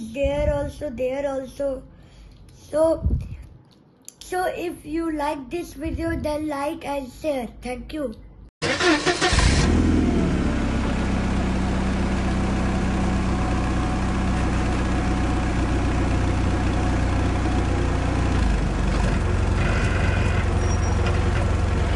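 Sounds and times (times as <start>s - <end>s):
vehicle engine idling: 8.6s - 21.9s.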